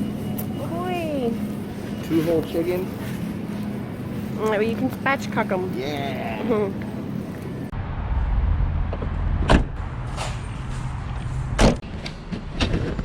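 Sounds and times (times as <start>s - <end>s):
car rumbling: 7.6s - 12.7s
sharp knocks or thumps: 8.9s - 10.3s.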